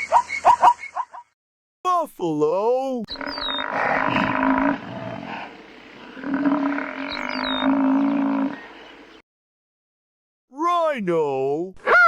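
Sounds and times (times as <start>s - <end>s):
bird chirp: 0.0s - 1.3s, 3.1s - 9.2s
buffalo bellowing: 3.1s - 9.1s.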